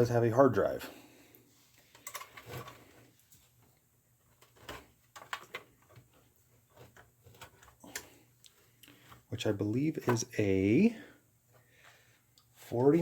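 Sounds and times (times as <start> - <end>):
hands clicking and tapping parts: 1.8 - 3.7, 4.3 - 9.3.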